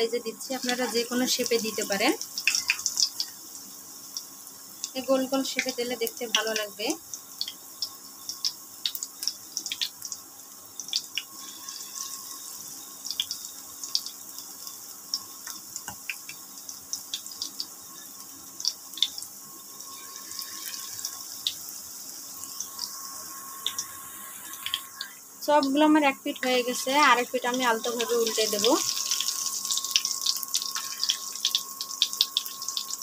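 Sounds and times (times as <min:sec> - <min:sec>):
deep-frying sizzle and crackling: 0:00.0 - 0:33.0
faint steady hum: 0:00.0 - 0:33.0.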